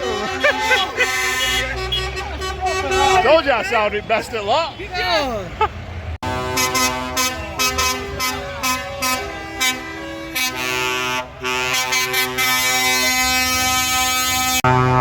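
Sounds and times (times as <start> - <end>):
truck air horns: 0.0 - 5.3, 6.2 - 15.0.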